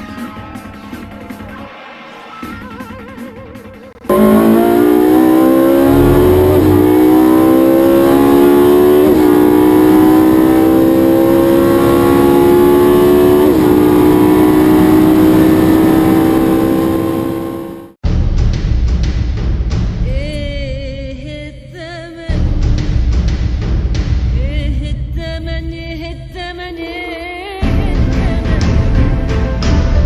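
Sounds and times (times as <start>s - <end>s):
race car engine at full throttle: 4.0s - 18.0s.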